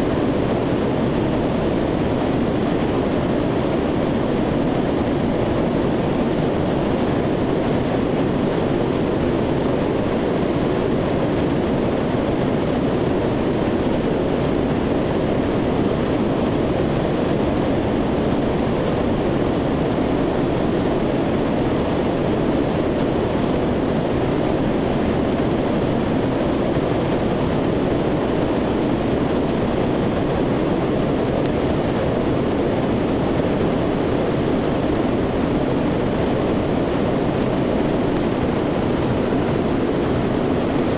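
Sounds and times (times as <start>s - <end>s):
turboprop engines rumbling: 0.0s - 40.9s.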